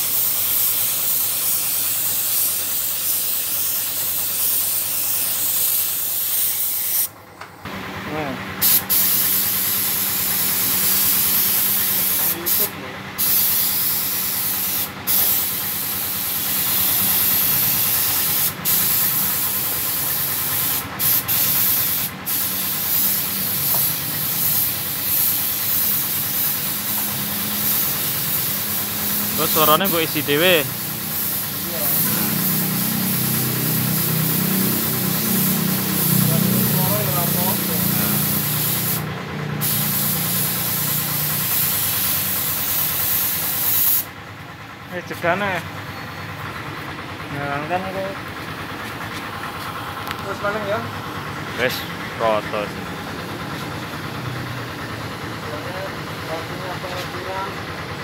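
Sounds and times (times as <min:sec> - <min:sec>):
paint spray gun hissing: 0:00.0 - 0:07.2, 0:08.6 - 0:44.2.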